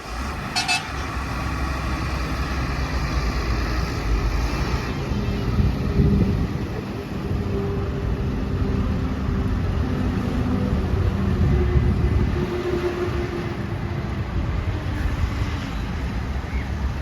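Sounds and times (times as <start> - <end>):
diesel machinery engine running: 0.0 - 7.4.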